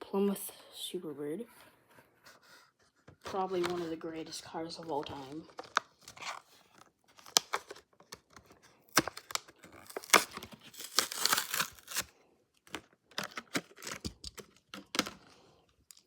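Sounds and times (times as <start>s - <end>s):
packaging torn and crinkled: 5.5s - 6.5s, 7.1s - 12.1s, 12.7s - 15.2s.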